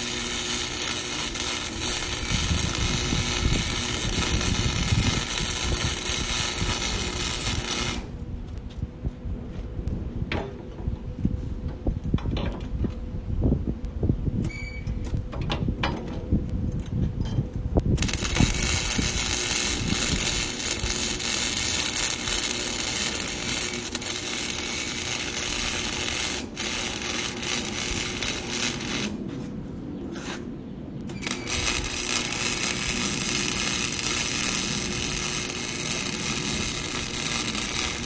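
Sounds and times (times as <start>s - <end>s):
welding arc crackling: 0.0s - 8.1s, 17.9s - 29.2s, 31.1s - 38.0s.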